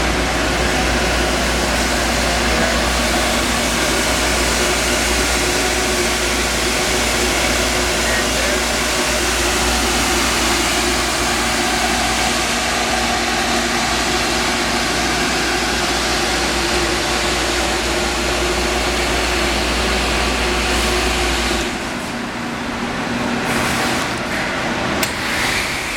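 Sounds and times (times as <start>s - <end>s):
dehumidifier fans rushing air: 0.0s - 25.9s
faint hum: 19.5s - 24.2s.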